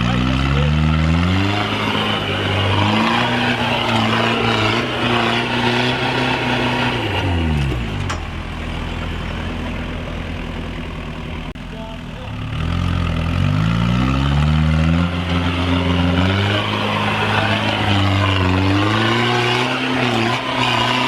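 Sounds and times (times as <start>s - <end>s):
diesel engine revving: 0.0s - 21.0s.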